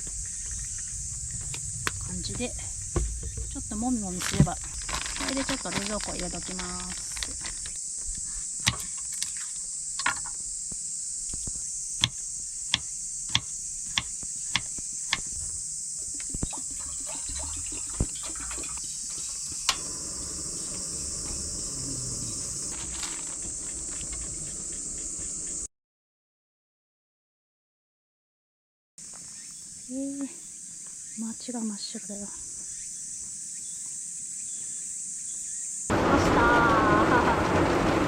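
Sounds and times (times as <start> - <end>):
insects chorus: 0.0 - 25.7, 29.0 - 38.0.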